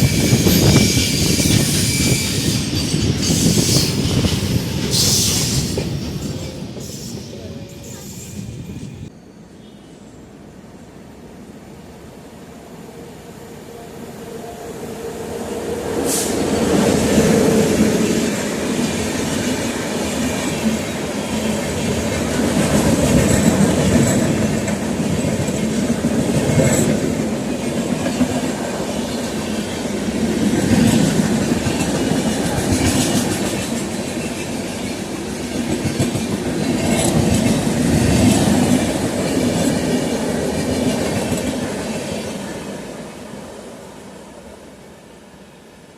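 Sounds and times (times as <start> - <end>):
train wheels clacking: 0.0 - 9.1, 17.2 - 42.4.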